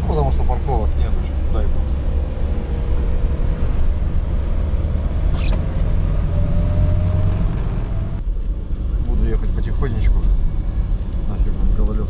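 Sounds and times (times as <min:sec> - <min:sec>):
van engine and road drone: 0:00.0 - 0:12.0
short scrape: 0:05.3 - 0:05.8.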